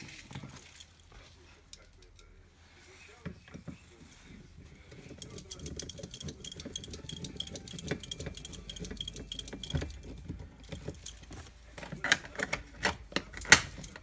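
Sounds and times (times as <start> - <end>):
metallic clicks and rattles: 4.9 - 14.0.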